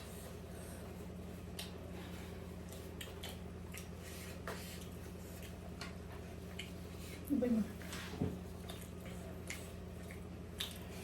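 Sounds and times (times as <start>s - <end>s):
person chewing food: 0.0s - 7.3s, 8.4s - 11.0s
steady low hum: 0.0s - 11.0s.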